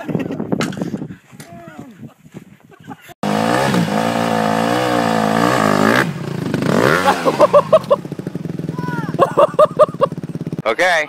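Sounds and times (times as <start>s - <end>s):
dirt bike engine revving: 3.2s - 11.0s.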